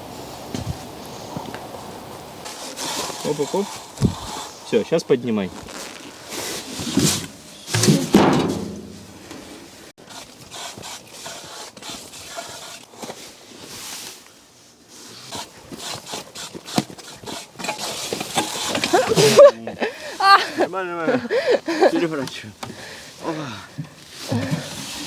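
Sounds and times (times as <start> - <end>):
sand scraping and tipping from wheelbarrow: 2.4 - 25.0.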